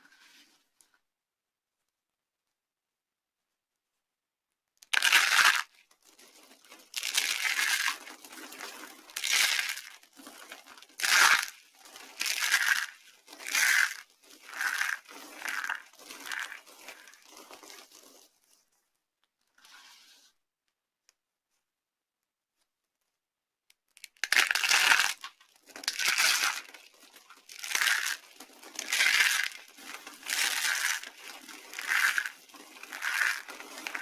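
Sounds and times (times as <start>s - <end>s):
dry soap crunching: 4.9s - 18.2s, 24.0s - 34.0s.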